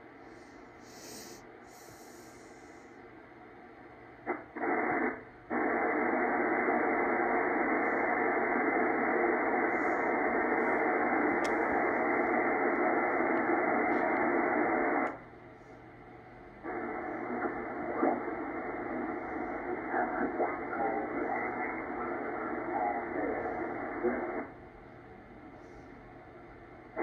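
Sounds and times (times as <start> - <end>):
radio receiver static hiss: 4.2 - 15.3, 16.6 - 24.6.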